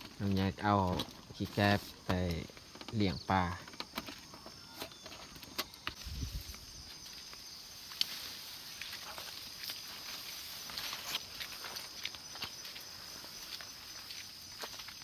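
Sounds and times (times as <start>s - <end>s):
steady high hiss: 5.9s - 14.5s.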